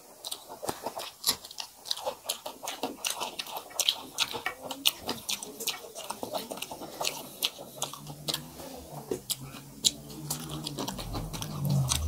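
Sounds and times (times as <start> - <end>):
people chewing and crunching: 0.0 - 12.0.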